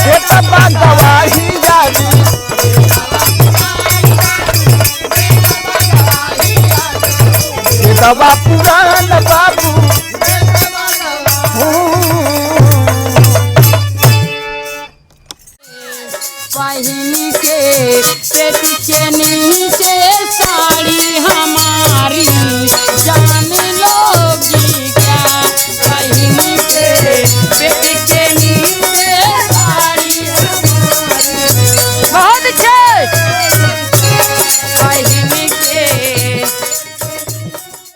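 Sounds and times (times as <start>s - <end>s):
bending folk melody: 13.4s - 19.6s, 20.4s - 37.9s.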